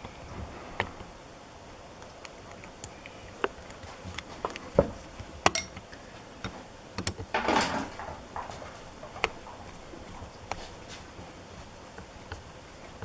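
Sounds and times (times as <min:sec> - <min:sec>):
scraping rustle: 0:02.0 - 0:13.0.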